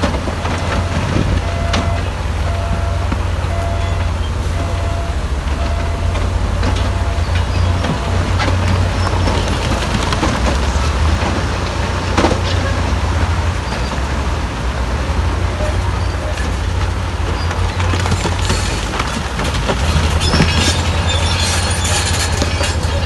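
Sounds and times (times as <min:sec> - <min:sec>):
diesel engine drone: 0:00.0 - 0:23.0
machinery clanks and knocks: 0:00.0 - 0:23.0.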